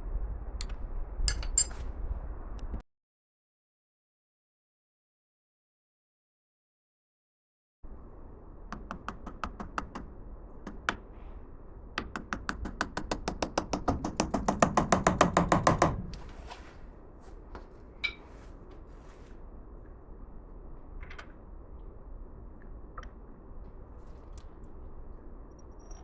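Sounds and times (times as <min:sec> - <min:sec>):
hammer taps: 0:08.7 - 0:11.0, 0:12.0 - 0:16.2.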